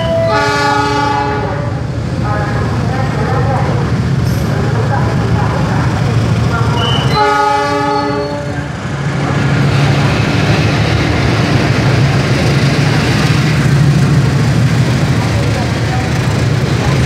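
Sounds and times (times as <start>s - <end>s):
locomotive horn: 0.0s - 1.7s, 6.8s - 8.6s
wagons rumbling on rails: 0.0s - 17.0s
diesel engine drone: 8.8s - 17.0s.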